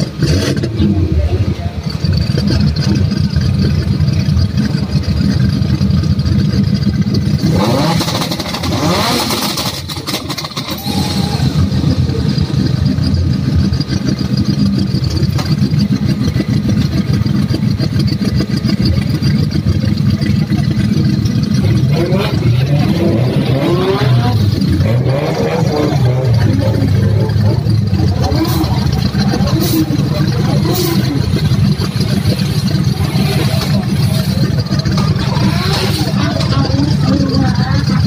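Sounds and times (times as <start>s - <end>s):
car engines idling: 0.0s - 38.0s
engine revving with hiss: 7.4s - 12.7s, 21.8s - 37.5s.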